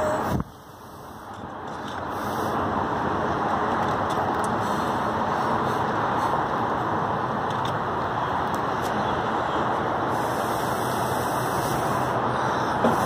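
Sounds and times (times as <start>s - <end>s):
road traffic hiss: 0.0s - 13.0s.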